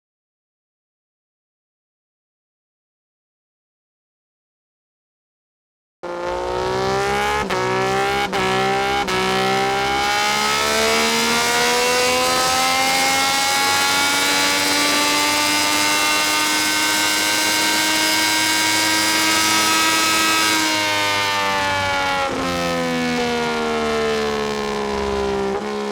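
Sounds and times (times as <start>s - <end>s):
motorcycle engine at full throttle: 6.0s - 25.9s.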